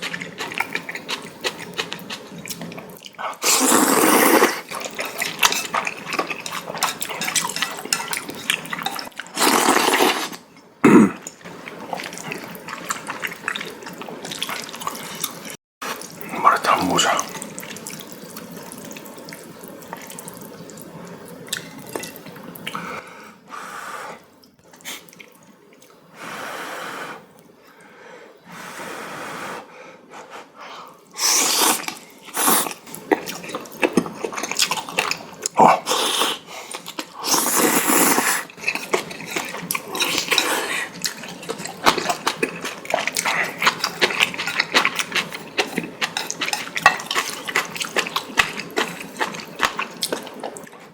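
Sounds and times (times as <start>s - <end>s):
chewing: 0.0s - 10.4s, 31.5s - 50.9s
person slurping noodles: 1.8s - 7.8s, 9.3s - 11.3s, 31.2s - 33.4s, 35.6s - 47.9s.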